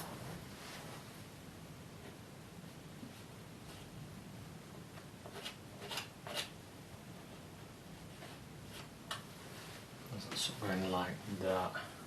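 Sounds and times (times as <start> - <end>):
brush strokes on canvas: 0.0 - 1.2.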